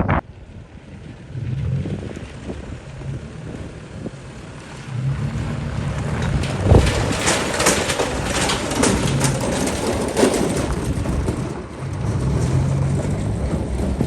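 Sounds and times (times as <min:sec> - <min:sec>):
tractor engines running: 0:00.0 - 0:14.0
wind buffeting microphone: 0:00.0 - 0:14.0.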